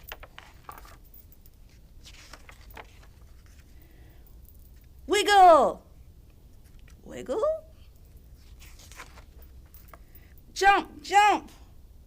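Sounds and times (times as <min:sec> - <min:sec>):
book pages rustling: 0:00.0 - 0:04.0, 0:06.5 - 0:07.0, 0:08.3 - 0:10.1.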